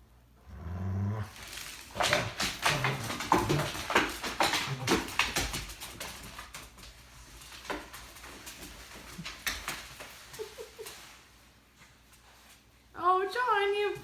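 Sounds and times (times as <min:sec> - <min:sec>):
dogs growling low: 0:00.4 - 0:05.8
paws and toy scuffling: 0:01.3 - 0:12.9.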